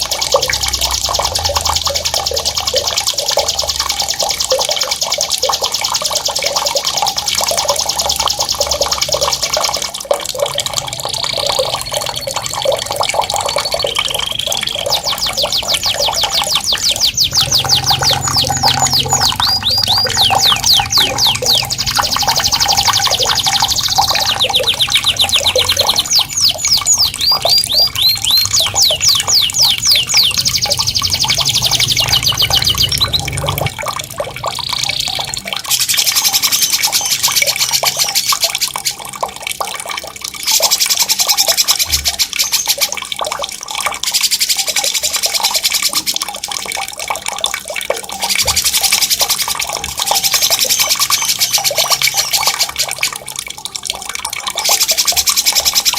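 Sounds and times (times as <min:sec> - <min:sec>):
running water: 0:00.0 - 0:55.9
songbird singing fast trills: 0:11.2 - 0:33.6.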